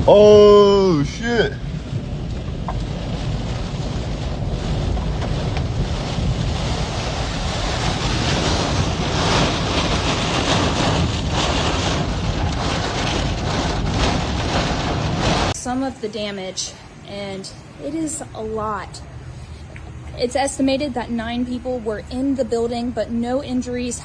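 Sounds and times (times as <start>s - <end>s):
strong wind on microphone: 0.0s - 15.6s.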